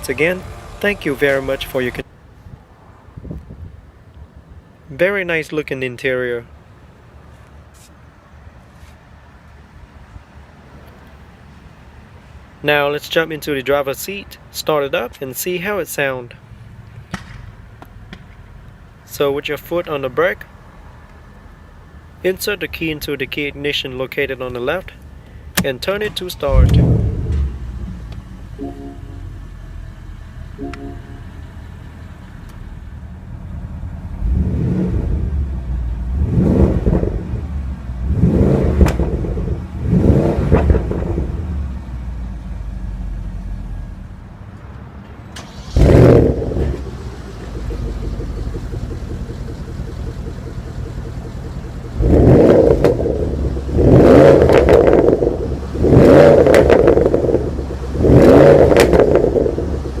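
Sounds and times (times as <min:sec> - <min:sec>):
car engine idling and revving: 0:00.0 - 0:02.6, 0:24.9 - 1:00.0.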